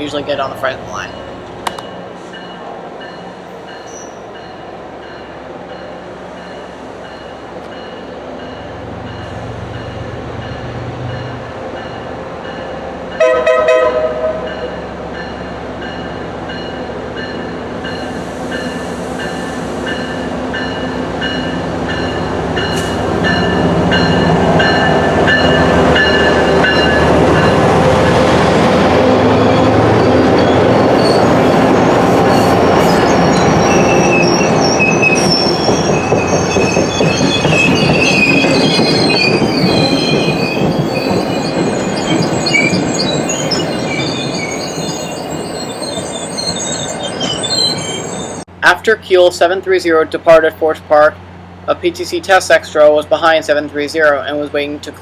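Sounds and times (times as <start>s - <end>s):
train rumbling past: 0.0s - 55.0s
high-pitched wheel squeal: 29.4s - 48.5s.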